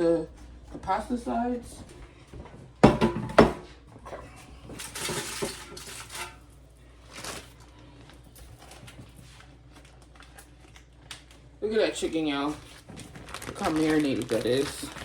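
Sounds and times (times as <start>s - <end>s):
dishes knocking: 2.8s - 3.8s.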